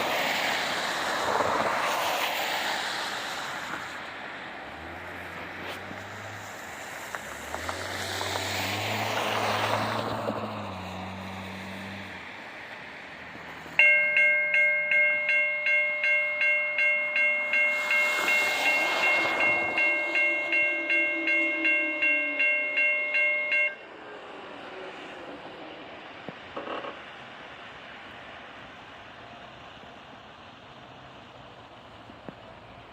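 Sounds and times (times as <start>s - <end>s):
vehicle passing: 0.0s - 13.9s, 14.6s - 26.8s
railroad crossing bell ringing: 13.5s - 24.5s.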